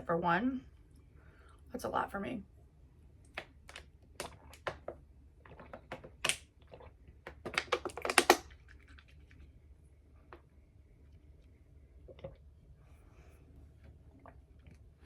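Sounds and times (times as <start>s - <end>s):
sharp crisp clicks and crackles: 3.2s - 9.5s.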